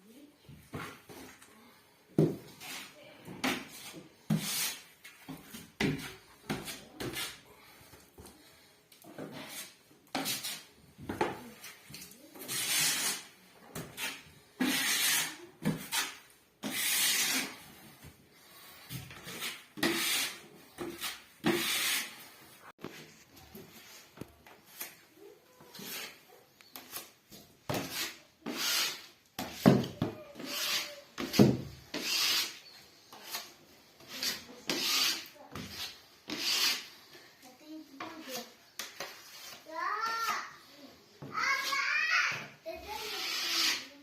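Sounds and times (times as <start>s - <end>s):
putty knife scraping drywall: 2.5s - 7.4s, 9.2s - 10.7s, 11.5s - 18.0s, 18.6s - 22.3s, 25.7s - 37.1s, 38.0s - 40.5s, 42.8s - 44.0s.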